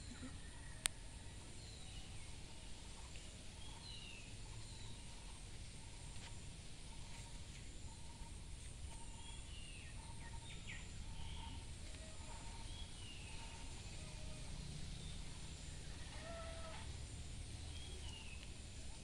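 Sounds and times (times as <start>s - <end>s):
birds chirping and whistling: 8.9s - 14.0s, 17.6s - 18.5s.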